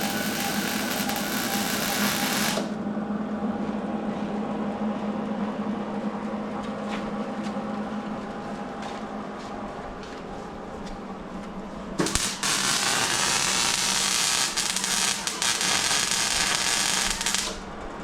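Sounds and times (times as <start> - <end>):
loud hiss: 0.0 - 2.8, 12.0 - 17.6
mechanical hum of shop equipment: 0.0 - 18.0.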